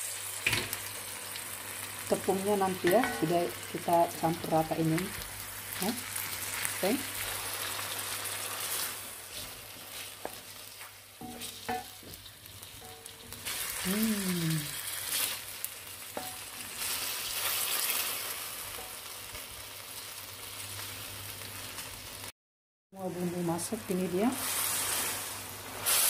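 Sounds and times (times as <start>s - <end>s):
food sizzling in a wok: 0.0s - 22.3s, 23.0s - 26.0s.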